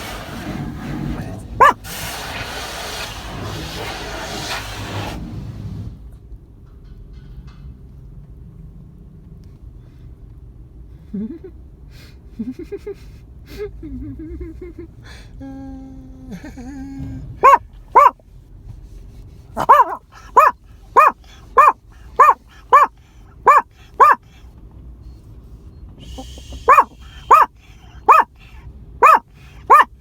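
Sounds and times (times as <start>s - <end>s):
dog barking: 1.6s - 2.0s, 17.4s - 18.2s, 19.6s - 24.2s, 26.5s - 28.3s, 29.0s - 29.9s.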